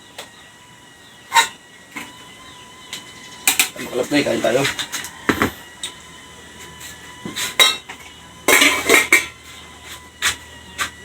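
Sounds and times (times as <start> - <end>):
utensils clinking and scraping plate: 6.6 - 11.0.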